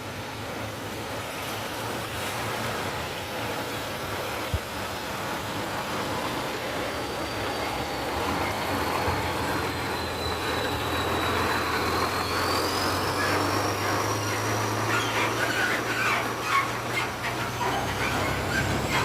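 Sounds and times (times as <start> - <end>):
truck engine low hum: 0.0 - 19.0
thin high whine: 3.0 - 19.0.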